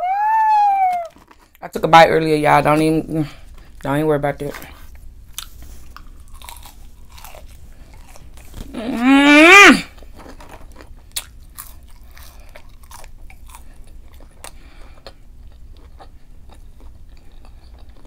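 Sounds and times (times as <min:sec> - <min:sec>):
person chewing crunchy food: 0:00.9 - 0:01.6, 0:04.4 - 0:18.0.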